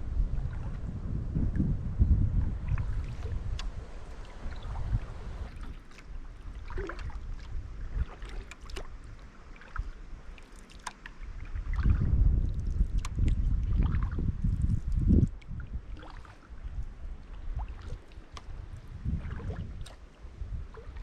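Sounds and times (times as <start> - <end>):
low rumble: 0.0 - 4.0
paddle splashes: 2.5 - 21.0.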